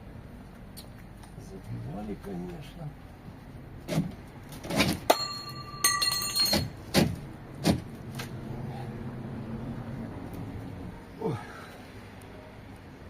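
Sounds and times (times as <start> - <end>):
metal object ringing: 5.1 - 6.7.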